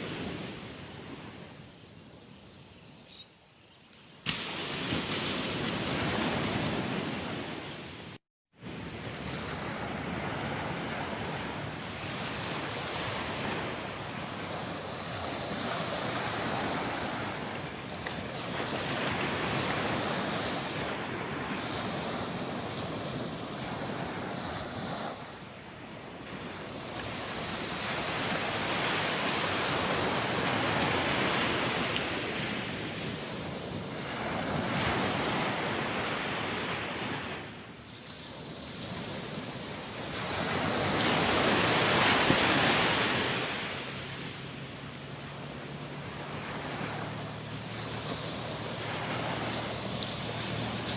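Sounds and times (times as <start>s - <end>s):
surf breaking on a beach: 4.2s - 50.9s.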